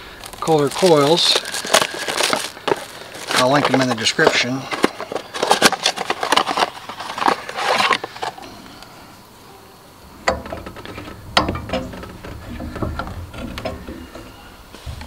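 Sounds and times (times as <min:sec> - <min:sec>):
rustling and clicking: 0:00.2 - 0:08.9, 0:10.1 - 0:15.0
sharp knocks: 0:10.2 - 0:14.5.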